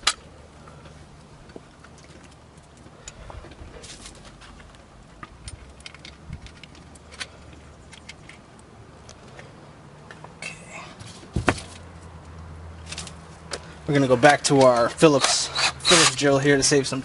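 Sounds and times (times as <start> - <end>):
screws and parts clinking: 5.2 - 8.5.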